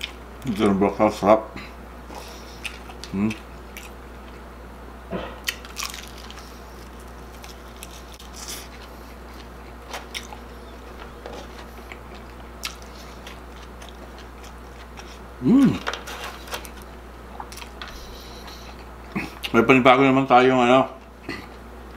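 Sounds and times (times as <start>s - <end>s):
steady low hum: 0.0s - 21.9s
chewing crispy food: 2.1s - 4.5s, 5.4s - 19.6s.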